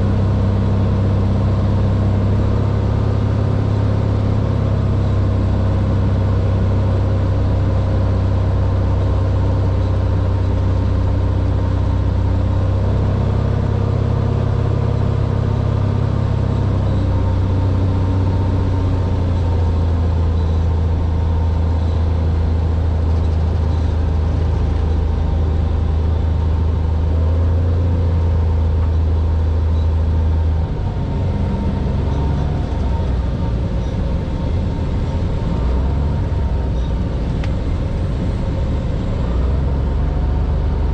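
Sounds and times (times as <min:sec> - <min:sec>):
propeller aircraft engine droning: 0:00.0 - 0:40.9.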